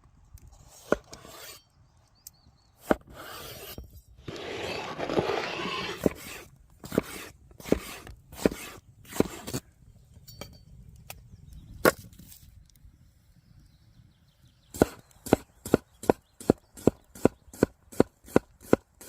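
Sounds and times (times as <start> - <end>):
knife chopping on wooden board: 6.0 - 9.5.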